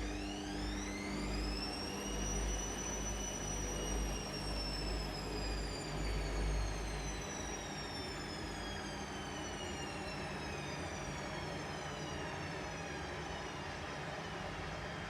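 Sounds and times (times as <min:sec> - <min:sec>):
washing machine motor whine: 0:00.0 - 0:15.0.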